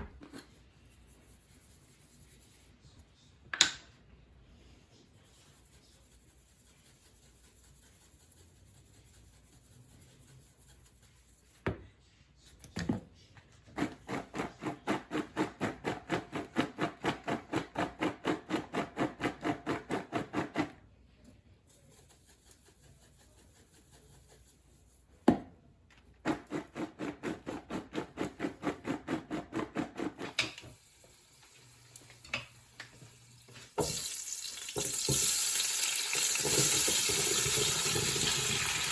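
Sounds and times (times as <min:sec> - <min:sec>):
food frying in a pan: 0:30.5 - 0:38.9.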